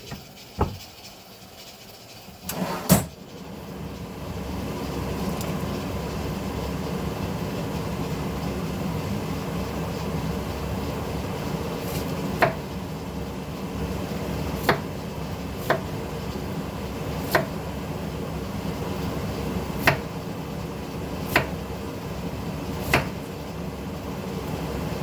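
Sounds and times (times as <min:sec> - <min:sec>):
sharp kitchen knocks: 0:00.0 - 0:00.8.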